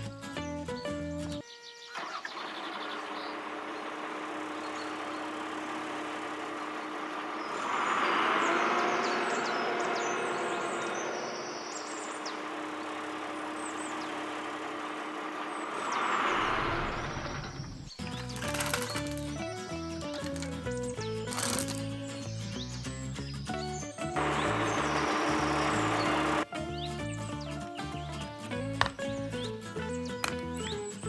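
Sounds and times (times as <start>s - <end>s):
motor humming and hissing: 24.2s - 26.4s.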